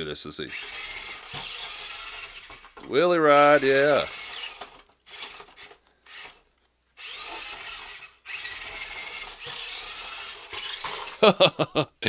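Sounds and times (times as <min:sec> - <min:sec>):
electric motors whining: 0:00.5 - 0:06.4, 0:07.0 - 0:11.3.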